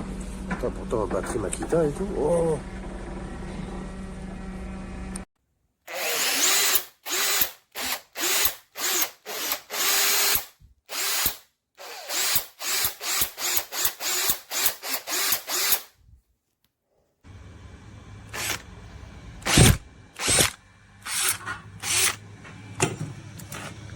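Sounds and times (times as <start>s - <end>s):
cordless drill whirring: 5.9s - 15.9s, 18.3s - 18.7s, 19.4s - 22.2s.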